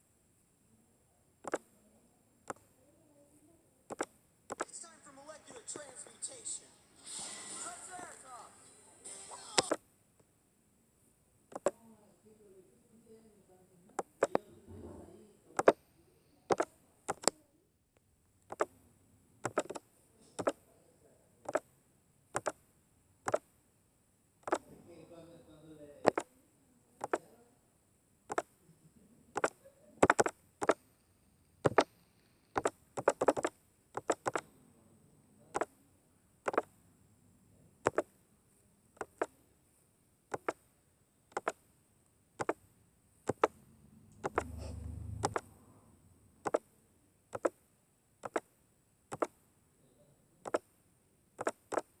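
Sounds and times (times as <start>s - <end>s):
sharp clicks: 1.4s - 1.7s, 3.9s - 4.8s, 9.5s - 9.8s, 11.5s - 11.8s, 15.6s - 15.8s, 16.5s - 17.4s, 18.4s - 18.8s, 19.4s - 20.6s, 21.5s - 21.7s, 22.3s - 22.6s, 23.2s - 23.5s, 24.4s - 24.6s, 26.0s - 26.3s, 27.0s - 27.3s, 28.3s - 28.6s, 29.4s - 30.9s, 31.6s - 34.5s, 35.5s - 35.7s, 36.4s - 36.8s, 37.8s - 38.2s, 39.0s - 39.4s, 40.3s - 40.7s, 41.3s - 41.6s, 42.4s - 44.6s, 45.2s - 45.5s, 46.4s - 46.7s, 47.3s - 49.5s, 50.4s - 50.8s, 51.4s - 52.0s
low hum: 43.6s - 46.4s.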